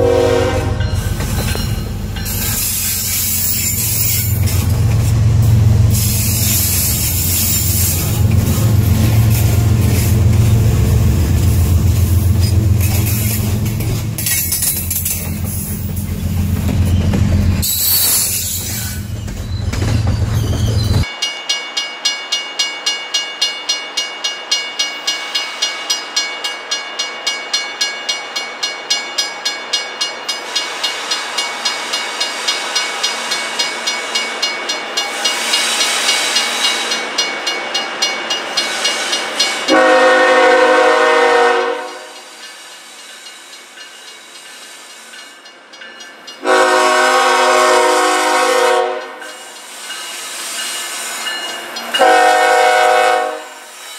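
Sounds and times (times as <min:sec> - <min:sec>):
locomotive air horn: 0:00.0 - 0:00.9, 0:39.7 - 0:42.2, 0:46.4 - 0:49.2, 0:52.0 - 0:53.7
diesel locomotive rumble: 0:00.0 - 0:17.8
train wheels clacking on rail joints: 0:00.8 - 0:21.1.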